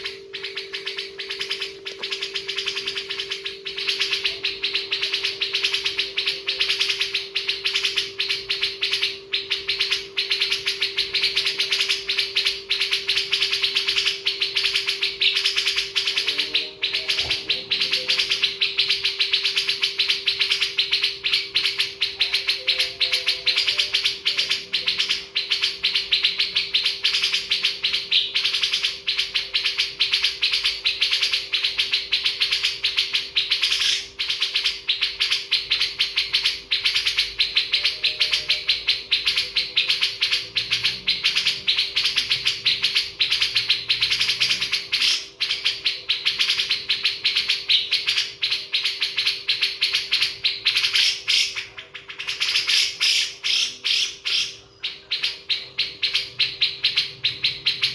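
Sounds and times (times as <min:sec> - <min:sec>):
faint low hum: 0:00.0 - 0:57.9
small birds chirping: 0:00.0 - 0:57.9.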